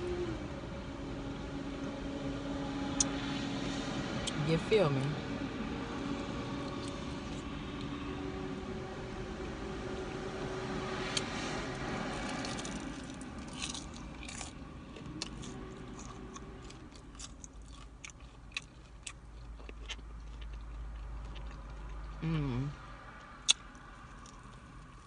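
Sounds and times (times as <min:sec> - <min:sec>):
steady low hum: 0:00.0 - 0:25.0
crunchy chewing of fried chicken: 0:12.0 - 0:22.5, 0:23.1 - 0:25.0.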